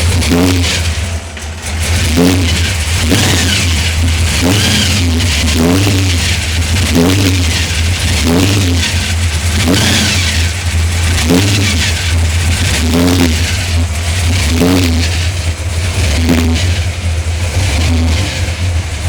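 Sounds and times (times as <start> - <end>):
v eight engine idling with revving: 0.0 - 19.0.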